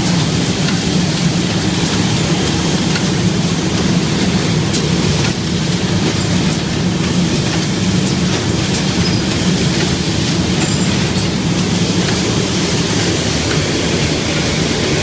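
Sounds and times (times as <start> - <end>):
machine clicks: 0.0 - 15.0
machinery humming: 0.0 - 15.0
short high squeaks: 10.6 - 11.3.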